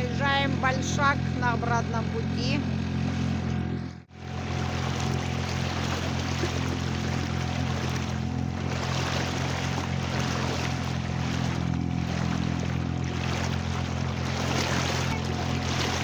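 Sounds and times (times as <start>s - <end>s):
boat engine droning: 0.0s - 16.0s
water rushing along hull: 0.0s - 16.0s.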